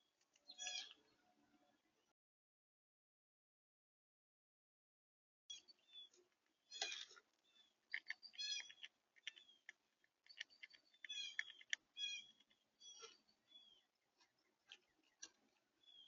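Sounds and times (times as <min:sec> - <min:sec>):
small birds chirping: 0:00.0 - 0:01.8, 0:05.5 - 0:16.0.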